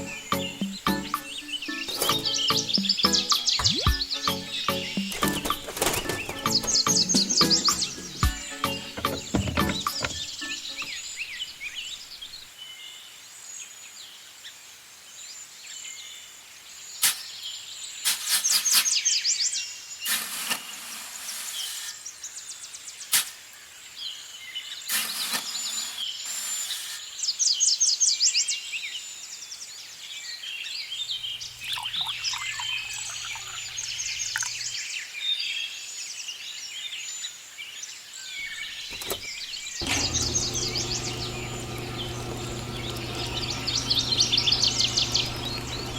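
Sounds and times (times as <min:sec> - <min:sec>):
small birds chirping: 0:00.0 - 0:12.9, 0:16.8 - 0:45.9
rustling bursts: 0:05.1 - 0:06.9
multi-tone buzzing: 0:39.8 - 0:45.9.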